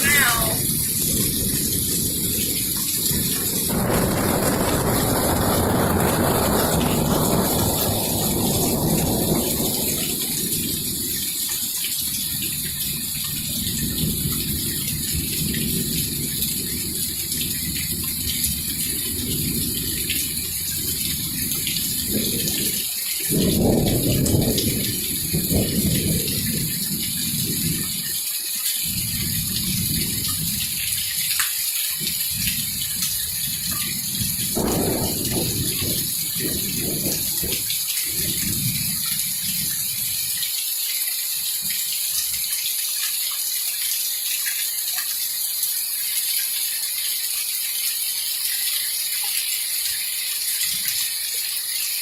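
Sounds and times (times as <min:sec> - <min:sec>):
thunder rumbling: 0:00.0 - 0:28.1, 0:28.8 - 0:31.0, 0:32.0 - 0:40.2
heavy rain falling: 0:00.0 - 0:52.0.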